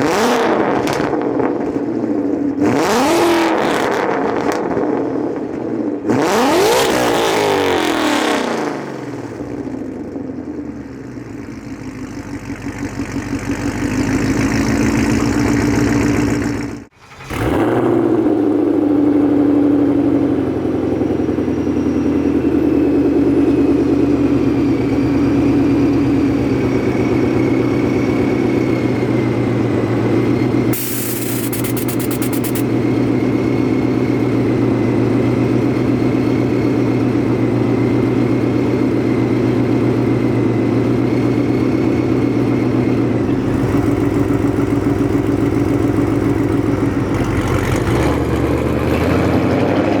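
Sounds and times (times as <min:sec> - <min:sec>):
car engine revving: 0:30.7 - 0:32.7.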